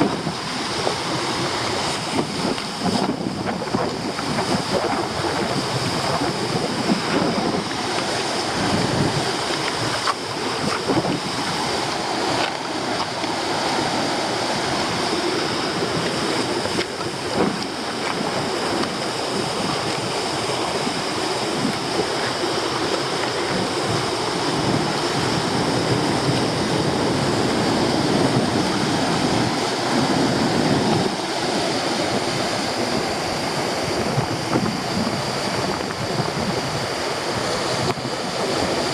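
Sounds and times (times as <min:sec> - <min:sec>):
strong wind on microphone: 0:00.0 - 0:38.9
surf breaking on rocky shore: 0:00.0 - 0:38.9.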